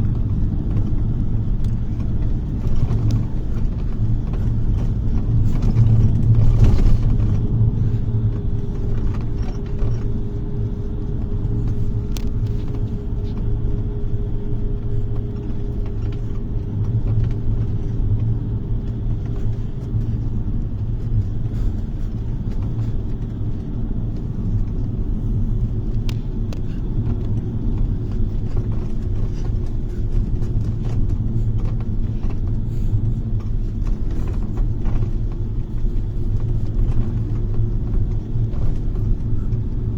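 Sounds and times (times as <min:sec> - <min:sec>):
bus engine and road rumble: 0:00.0 - 0:39.9
light rattles: 0:00.0 - 0:39.9.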